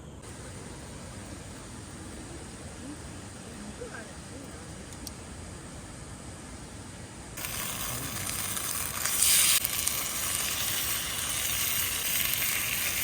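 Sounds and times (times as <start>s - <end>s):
food sizzling on hot metal: 7.4s - 13.0s.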